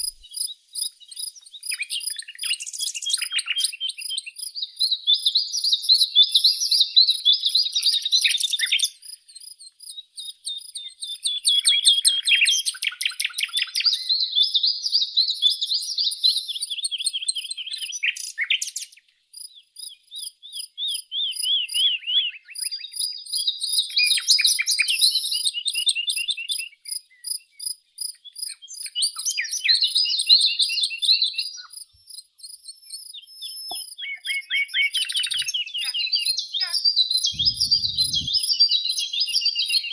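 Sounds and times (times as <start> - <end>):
songbird trilling: 0.0 - 14.4, 19.8 - 39.9.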